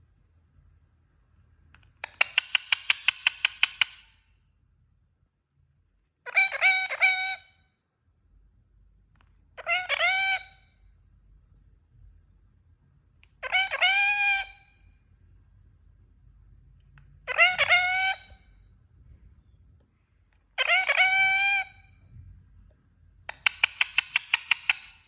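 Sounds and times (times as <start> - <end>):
parakeet shrill calls: 2.0 - 4.0, 6.3 - 7.6, 9.6 - 10.7, 13.4 - 14.7, 17.2 - 18.5, 20.6 - 21.9, 23.3 - 25.0.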